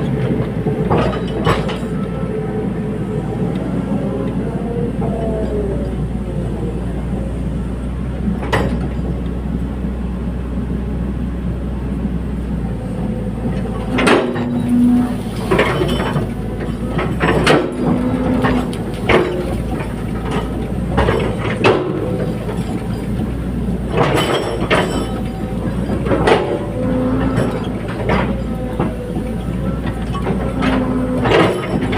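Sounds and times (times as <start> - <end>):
excavator engine running: 0.0 - 31.9
metallic clanks and knocks: 0.2 - 2.0, 13.6 - 31.9.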